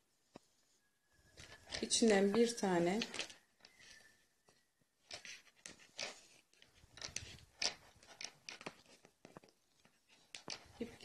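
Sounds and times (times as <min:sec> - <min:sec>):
yarn rustling and scraping: 0:05.0 - 0:11.0.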